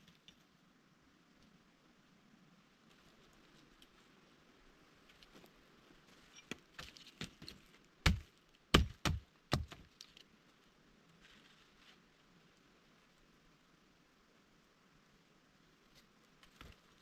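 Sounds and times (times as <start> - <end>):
hand tool striking wood: 7.2 - 9.9.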